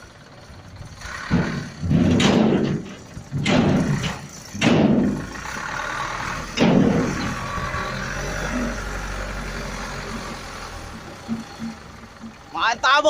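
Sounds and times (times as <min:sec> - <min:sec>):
heavy bangs and clattering thuds: 0:01.2 - 0:05.4, 0:06.4 - 0:07.5.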